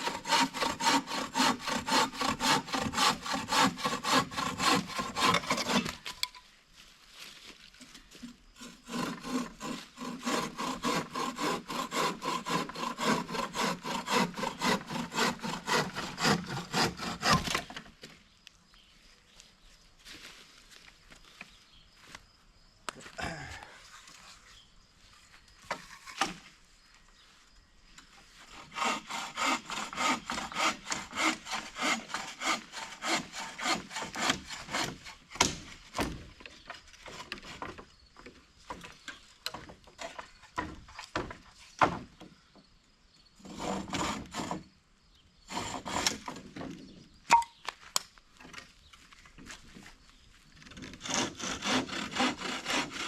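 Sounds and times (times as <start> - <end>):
hand saw cutting wood: 0.0 - 6.3, 8.6 - 17.8, 28.5 - 36.2, 37.0 - 37.8, 43.4 - 44.7, 45.5 - 46.5, 50.7 - 53.0.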